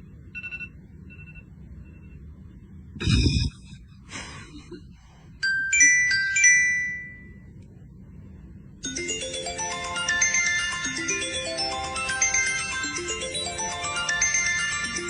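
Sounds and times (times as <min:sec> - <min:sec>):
ringtone-like chiming notes: 0:05.4 - 0:07.4, 0:08.8 - 0:15.0
music: 0:08.8 - 0:15.0.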